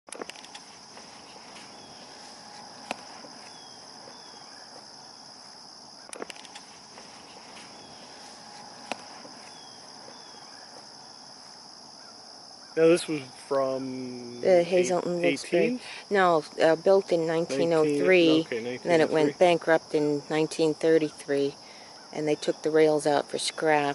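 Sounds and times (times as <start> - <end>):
sharp clicks: 0.1 - 0.7, 6.1 - 6.7
insects chirping: 0.1 - 23.9.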